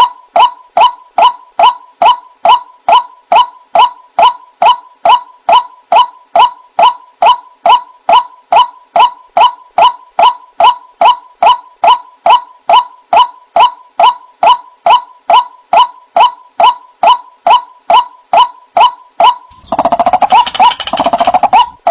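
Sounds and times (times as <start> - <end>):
waterhen calling: 19.5 - 21.9.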